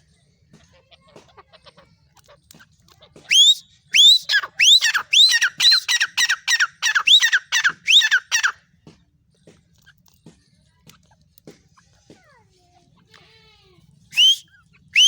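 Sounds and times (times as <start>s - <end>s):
francolin calling: 3.3s - 8.6s, 14.2s - 14.4s.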